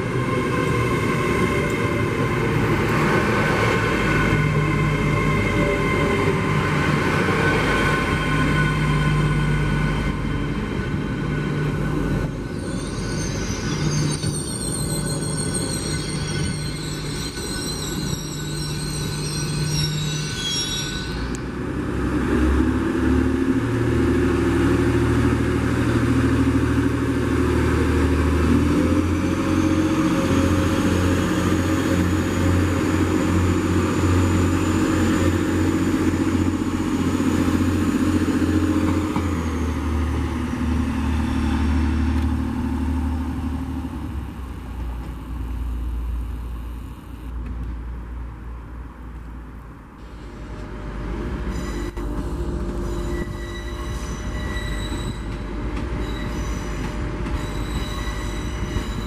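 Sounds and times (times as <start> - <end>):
train wheels rumbling on rails: 0.0 - 59.0
high squeal: 11.8 - 21.5, 29.0 - 42.0, 51.5 - 59.0.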